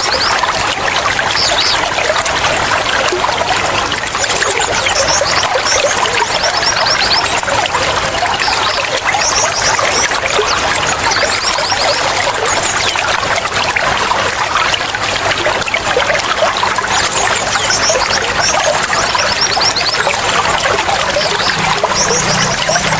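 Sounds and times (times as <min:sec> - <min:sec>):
water trickling and bubbling: 0:00.0 - 0:22.9.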